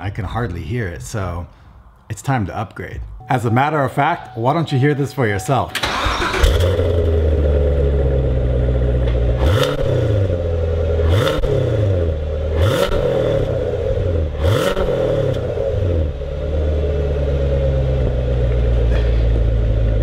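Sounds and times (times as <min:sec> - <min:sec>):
car engine idling and revving: 0:05.8 - 0:20.0.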